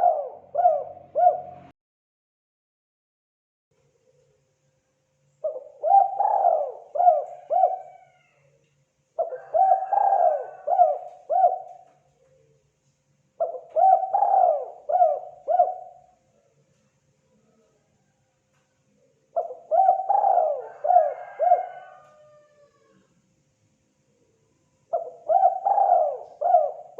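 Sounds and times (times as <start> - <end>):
dove cooing: 0.0 - 1.7, 5.4 - 8.5, 9.2 - 12.6, 13.4 - 16.2, 19.3 - 23.1, 24.9 - 26.9.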